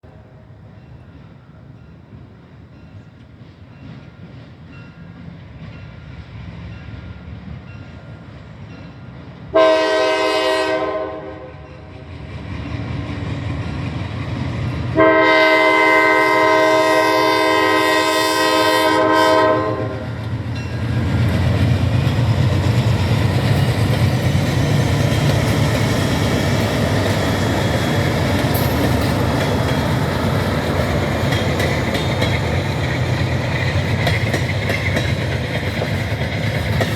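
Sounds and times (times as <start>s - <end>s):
train passing rumble: 0.0s - 36.9s
train chime horn: 7.9s - 11.9s, 15.0s - 20.9s, 24.6s - 30.4s
wheels clacking over rail joints: 20.2s - 36.9s.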